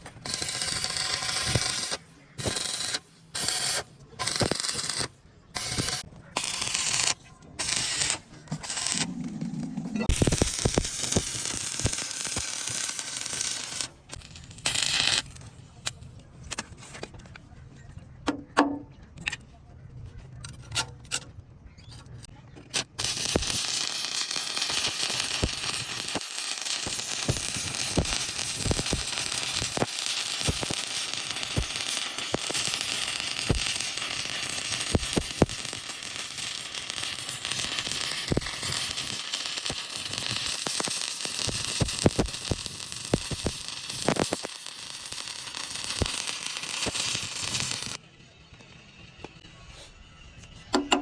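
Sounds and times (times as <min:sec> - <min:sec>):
sharp welding pops: 0:00.0 - 0:09.3, 0:10.0 - 0:16.7, 0:22.6 - 0:48.0
welding arc crackling hiss: 0:00.0 - 0:09.4, 0:10.0 - 0:15.4, 0:22.8 - 0:48.0.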